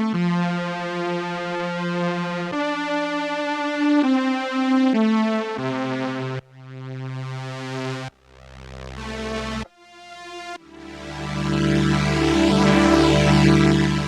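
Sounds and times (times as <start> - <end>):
keyboard playing sustained chords: 10.3 - 14.0.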